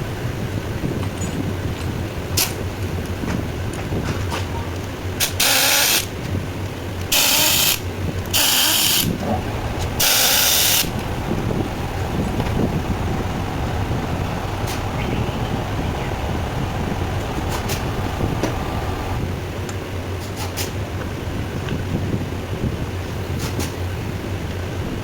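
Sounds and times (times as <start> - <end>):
steady low hum: 6.4 - 19.6
short loud hissing bursts: 7.1 - 7.8, 8.4 - 19.2.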